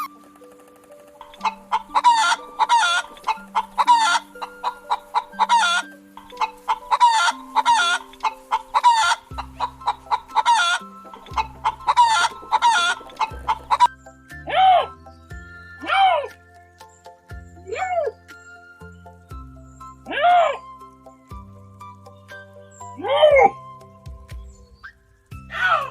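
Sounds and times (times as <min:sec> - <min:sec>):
simple backing music: 0:00.0 - 0:25.9
chicken clucking: 0:01.2 - 0:13.9.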